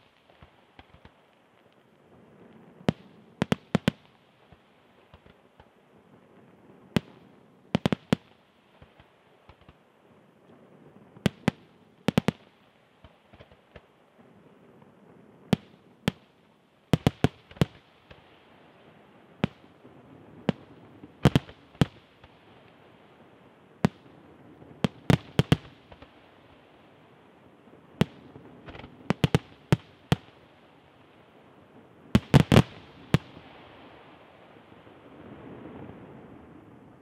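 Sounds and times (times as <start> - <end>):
firework shells bursting: 0.0 - 1.4, 7.0 - 9.8, 17.0 - 18.2, 19.4 - 19.7, 20.4 - 22.3, 24.7 - 26.1, 28.0 - 30.4, 32.2 - 33.6.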